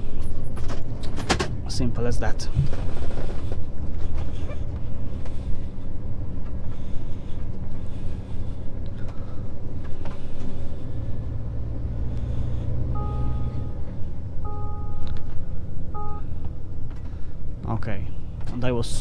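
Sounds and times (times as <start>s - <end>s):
truck engine rumbling: 0.0s - 19.0s
two-tone electronic beep: 13.0s - 13.8s, 14.4s - 15.1s, 16.0s - 16.3s.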